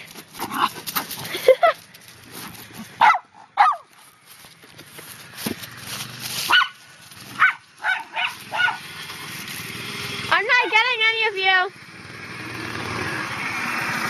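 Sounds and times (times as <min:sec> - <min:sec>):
dog barking: 0:03.0 - 0:03.9, 0:06.5 - 0:06.8, 0:07.4 - 0:08.9.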